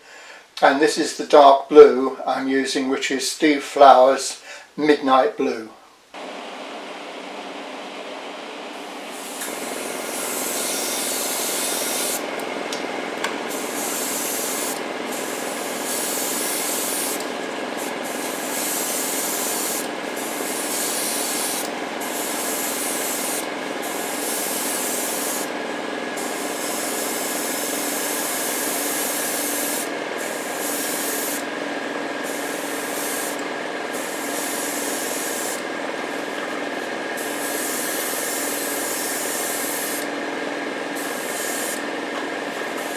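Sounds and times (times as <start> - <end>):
steady hum: 6.1 - 26.6
airbrush air hiss: 8.8 - 12.3, 13.4 - 25.5, 26.2 - 31.5, 32.2 - 36.4, 37.2 - 40.1, 40.9 - 41.9, 42.6 - 42.9.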